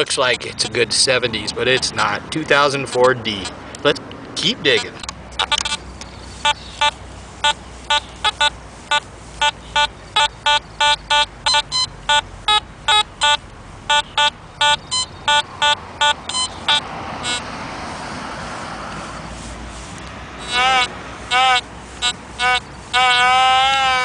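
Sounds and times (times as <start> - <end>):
metal detector beeping: 4.6 - 17.5, 20.4 - 24.0.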